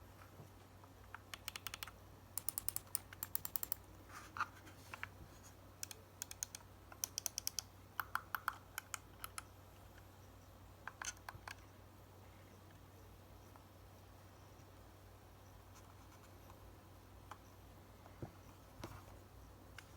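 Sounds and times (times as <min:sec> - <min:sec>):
mouse buttons clicking: 0:01.2 - 0:03.8, 0:05.8 - 0:09.5.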